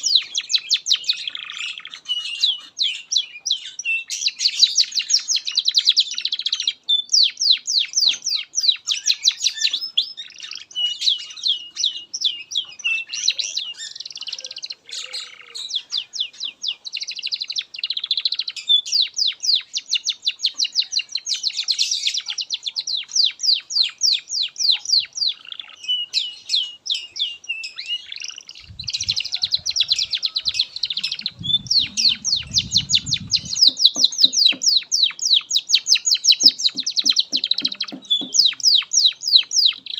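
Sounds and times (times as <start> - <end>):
canary singing trills: 0.0 - 39.9
low rumble: 31.0 - 33.7.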